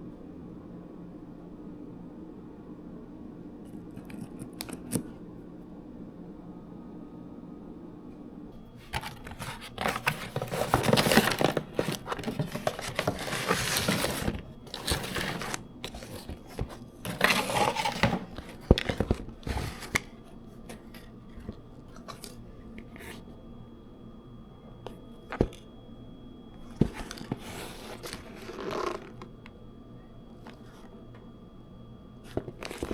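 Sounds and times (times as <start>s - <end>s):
packaging tearing and crinkling: 8.9s - 20.1s, 27.0s - 29.3s.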